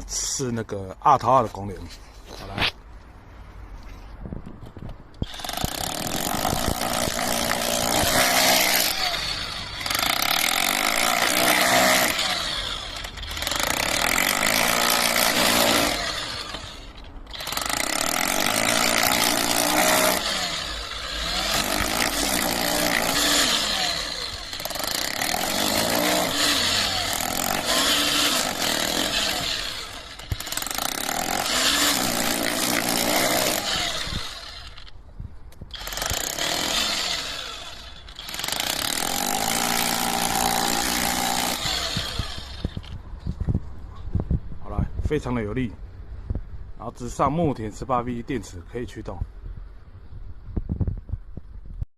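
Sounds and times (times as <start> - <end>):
rotary hammer drilling concrete: 5.2 - 35.0, 35.6 - 43.0.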